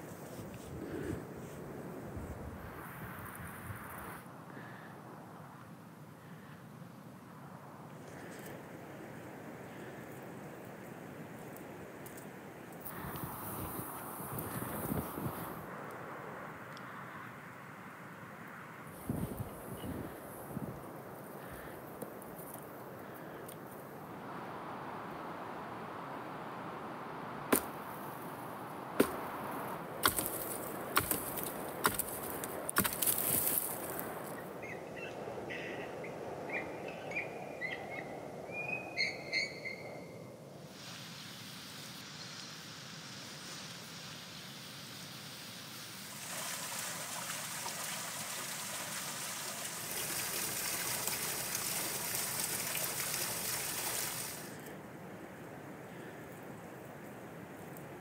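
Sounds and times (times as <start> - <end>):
hatchet chopping wood: 27.5 - 27.7, 29.0 - 29.3, 30.0 - 33.4
twigs crackling: 27.5 - 34.6.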